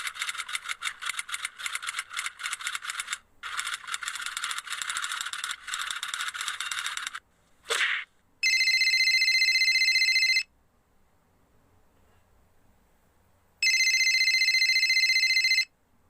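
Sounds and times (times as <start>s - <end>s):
telephone ringing: 8.4s - 10.5s, 13.6s - 15.7s.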